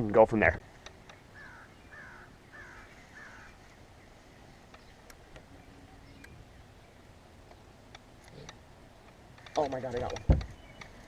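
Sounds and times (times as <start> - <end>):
bird harsh calls: 1.1 - 7.2.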